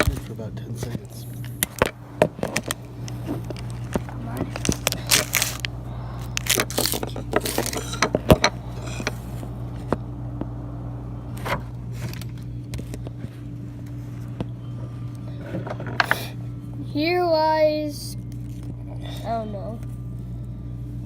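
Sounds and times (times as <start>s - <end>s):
low electrical hum: 0.0s - 21.0s
clicks and scrapes of handling: 6.4s - 10.0s.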